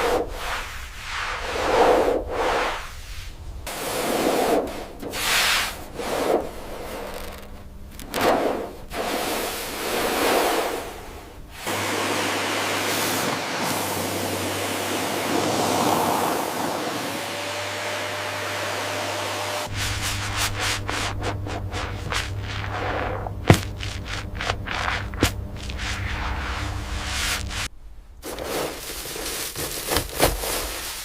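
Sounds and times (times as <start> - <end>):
low hum: 0.0 - 11.7, 13.6 - 29.5
scrubbing car bodywork: 3.7 - 15.6, 19.7 - 31.0
spraying water hiss: 8.2 - 27.7.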